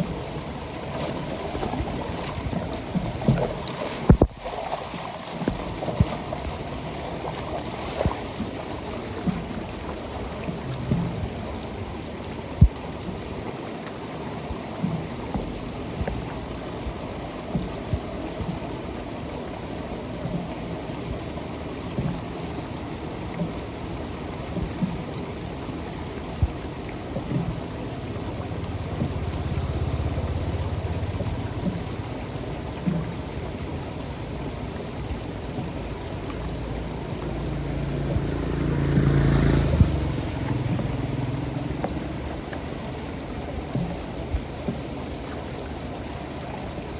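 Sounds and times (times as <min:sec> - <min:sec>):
rain on flooded street hissing: 0:05.3 - 0:46.9
low rumble: 0:27.5 - 0:42.6.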